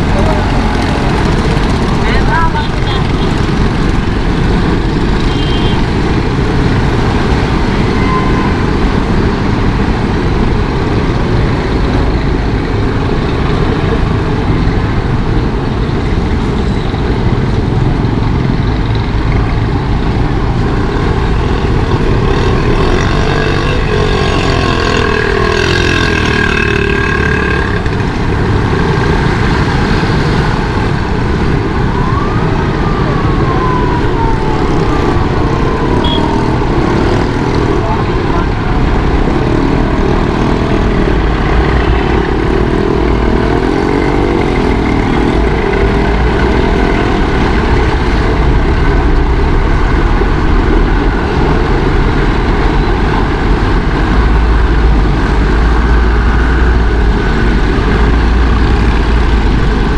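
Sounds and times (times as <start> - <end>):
heavy vehicle engine passing: 0.0 - 59.9
traffic noise: 0.0 - 59.9
siren wailing: 7.4 - 9.0, 30.0 - 52.2.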